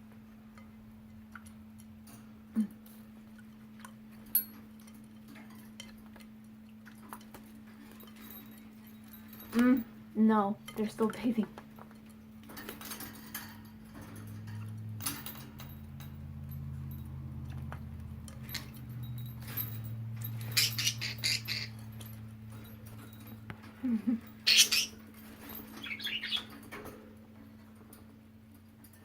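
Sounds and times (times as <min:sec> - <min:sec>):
steady low hum: 0:00.0 - 0:29.0
budgies chirping: 0:20.4 - 0:21.8, 0:24.5 - 0:25.0, 0:25.7 - 0:26.6.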